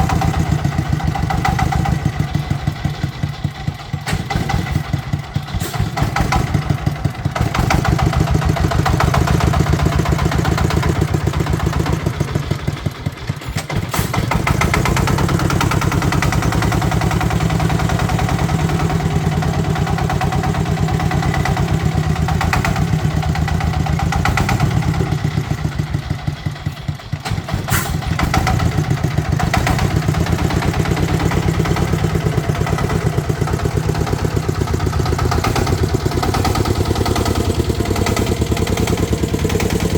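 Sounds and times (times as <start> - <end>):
tractor engine chugging: 0.0 - 39.9.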